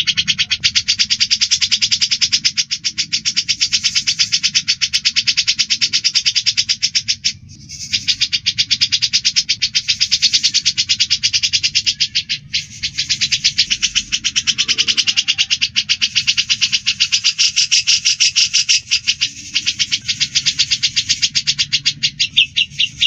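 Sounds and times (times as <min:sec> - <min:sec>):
birds chirping sharply: 0:00.0 - 0:23.0.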